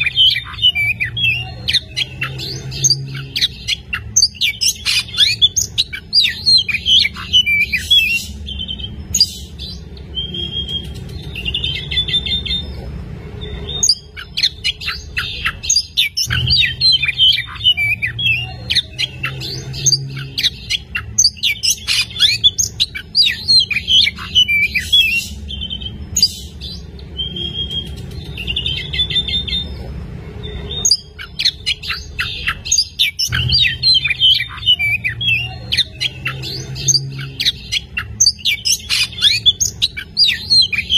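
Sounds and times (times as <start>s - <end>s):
bird singing whistles and trills: 0.0s - 12.7s, 13.4s - 29.7s.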